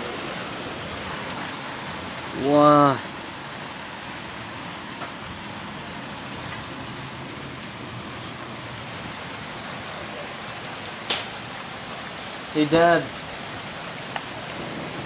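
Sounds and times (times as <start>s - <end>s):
heavy rain and hail: 0.0s - 15.0s
hailstones ticking: 10.9s - 11.4s.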